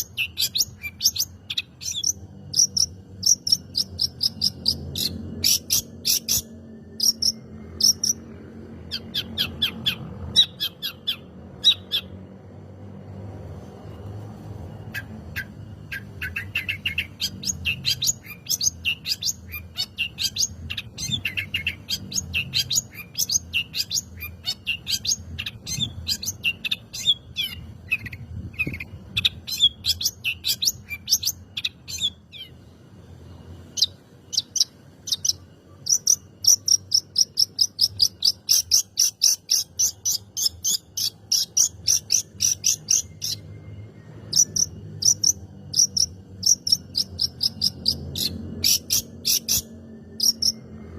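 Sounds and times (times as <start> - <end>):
shrike chirping: 14.8 - 50.6.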